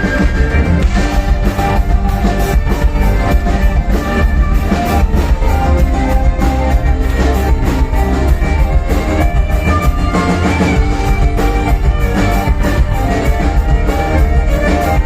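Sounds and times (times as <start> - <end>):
drum kit beat: 0.0 - 15.0
guitar: 0.0 - 15.0.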